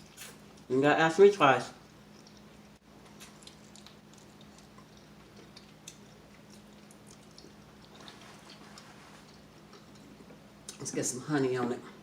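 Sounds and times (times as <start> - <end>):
faint low hum: 0.0 - 12.0
crunchy chewing: 1.8 - 10.2.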